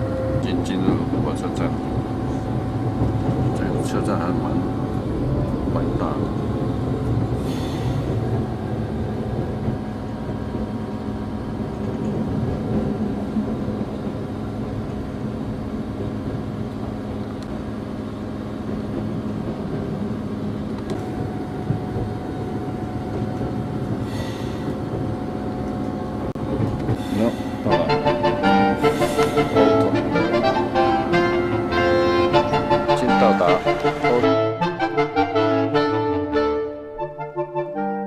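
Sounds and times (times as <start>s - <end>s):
train rumbling: 0.0s - 38.0s
higher steady tone: 27.6s - 37.8s.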